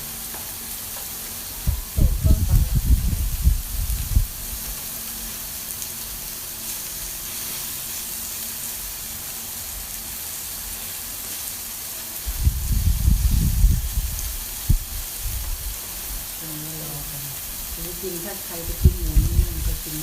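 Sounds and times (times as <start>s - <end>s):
meat sizzling on grill pan: 0.0s - 20.0s
low rumbling bumps: 1.6s - 4.5s, 12.3s - 15.7s, 18.6s - 20.0s.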